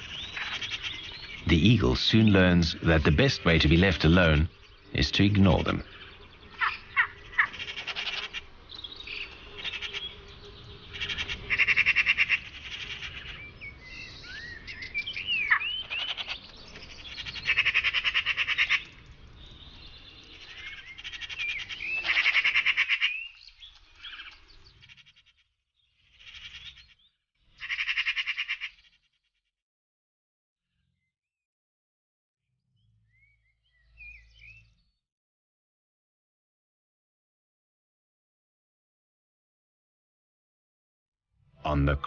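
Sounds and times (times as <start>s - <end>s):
magpies chattering: 0.0s - 25.4s, 26.0s - 29.0s.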